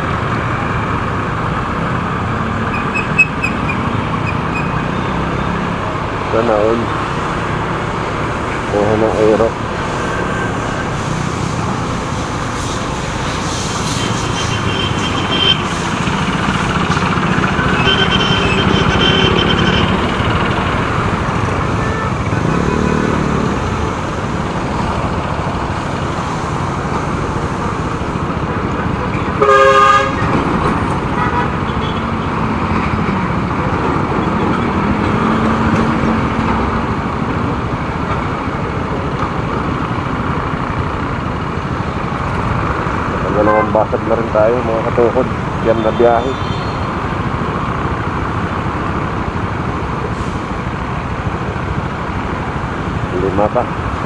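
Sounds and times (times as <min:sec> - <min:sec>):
motorcycle engine and road noise: 0:00.0 - 0:54.0
vehicle horn honking: 0:17.6 - 0:20.0, 0:21.7 - 0:23.0, 0:29.4 - 0:30.2, 0:45.8 - 0:46.8.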